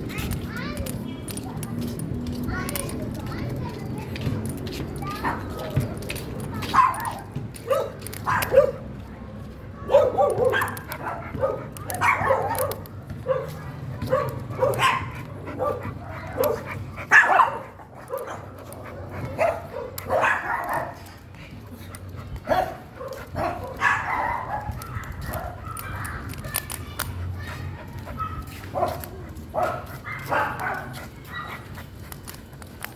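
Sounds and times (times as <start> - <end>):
dog barking: 6.6 - 8.8, 9.9 - 18.6, 19.3 - 21.1, 22.5 - 26.2, 28.1 - 31.6.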